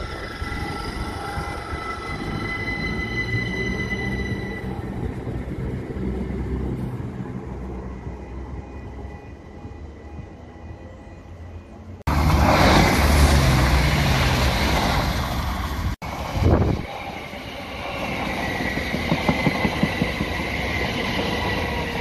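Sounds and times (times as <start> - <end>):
diesel train passing at speed: 0.0 - 22.0
passenger train passing: 0.0 - 22.0.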